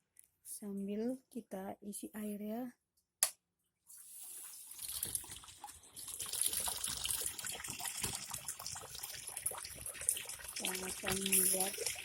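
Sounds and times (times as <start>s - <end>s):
water running into washing machine: 4.0s - 12.0s.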